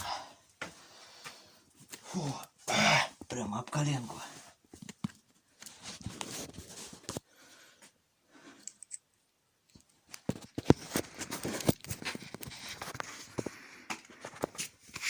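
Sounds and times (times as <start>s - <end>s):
scuffs and rustling: 3.6s - 7.2s, 10.2s - 15.0s.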